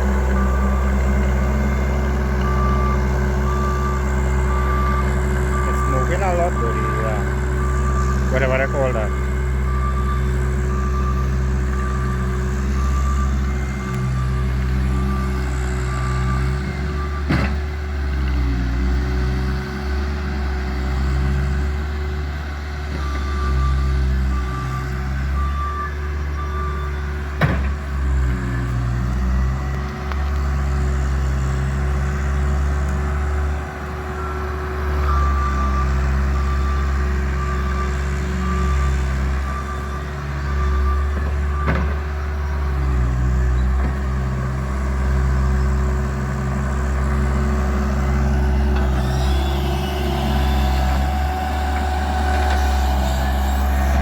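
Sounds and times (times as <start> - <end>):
backup alarm beeping: 0.0 - 17.3
loader engine running: 0.0 - 54.0.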